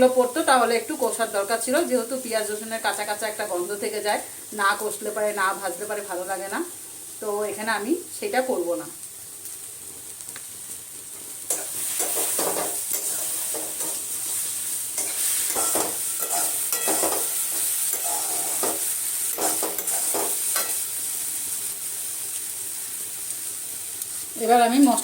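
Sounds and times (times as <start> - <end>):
paste sizzling in hot oil: 0.0 - 25.0
spatula scraping a pan: 11.5 - 20.8.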